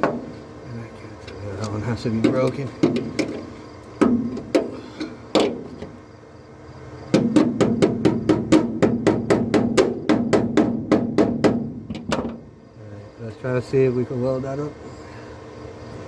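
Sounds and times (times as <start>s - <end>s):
hammer striking sheet steel: 7.2s - 12.3s.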